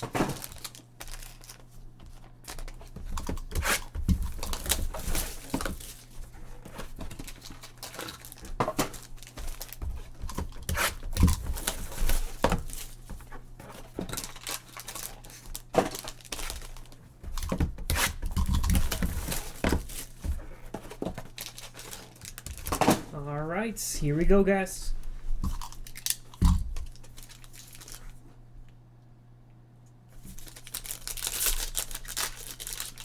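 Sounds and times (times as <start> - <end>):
wrapper crinkling and tearing: 0.0 - 6.2, 6.8 - 13.0, 13.7 - 20.2, 21.2 - 23.0, 25.6 - 28.1, 30.2 - 33.0
packaging clicks and knocks: 0.0 - 23.1, 30.4 - 33.0.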